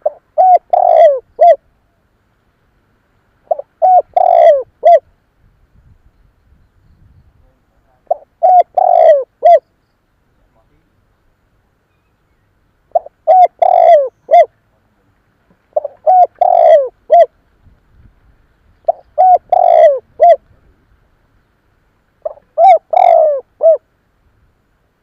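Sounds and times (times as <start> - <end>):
dove cooing: 0.0 - 1.7, 3.4 - 5.0, 8.0 - 9.6, 12.9 - 14.5, 15.7 - 17.4, 18.9 - 20.8, 22.2 - 23.9.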